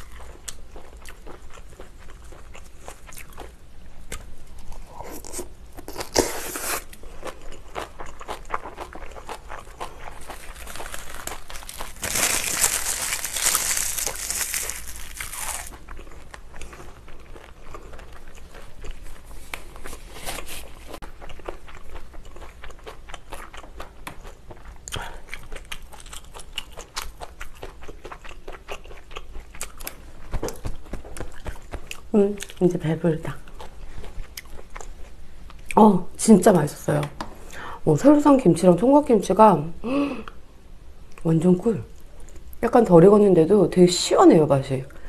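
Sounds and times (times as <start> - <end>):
mouth chewing and crunching: 0.0 - 35.9.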